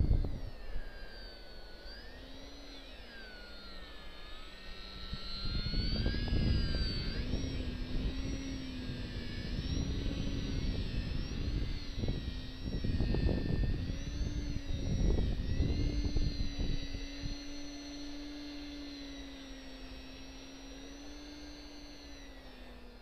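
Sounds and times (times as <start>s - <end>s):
wind rumbling on microphone: 0.0s - 0.6s, 5.1s - 17.6s
electric plane motor whining: 0.0s - 23.0s.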